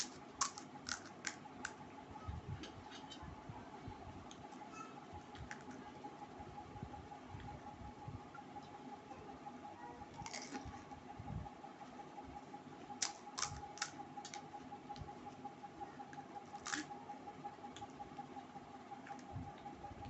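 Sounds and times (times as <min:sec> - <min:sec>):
faint steady hum: 0:00.0 - 0:20.0
crisp food crunching: 0:16.5 - 0:16.9.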